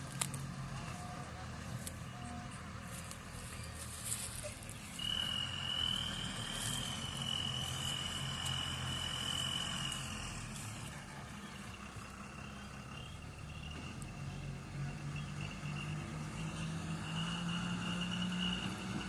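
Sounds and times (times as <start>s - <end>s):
diesel engine running: 0.0s - 19.0s
high steady whine: 0.9s - 14.1s.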